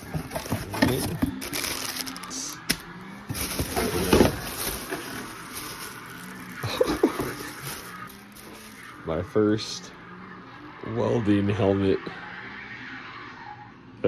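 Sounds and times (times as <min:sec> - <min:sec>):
cardboard packaging rustling: 0:00.0 - 0:09.0.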